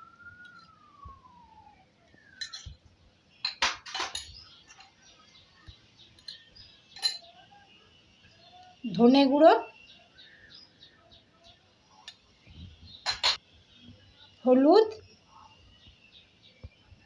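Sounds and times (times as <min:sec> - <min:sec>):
faint falling whistle: 0:00.0 - 0:02.6
kitchen utensils clinking: 0:02.4 - 0:02.8, 0:03.4 - 0:05.0, 0:06.2 - 0:07.4, 0:13.0 - 0:13.4.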